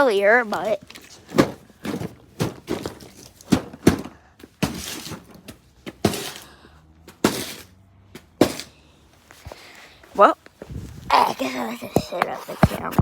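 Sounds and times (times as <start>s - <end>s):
scraping rustles: 0.3s - 13.0s
hard objects knocking and thudding: 0.5s - 8.8s, 11.8s - 13.0s.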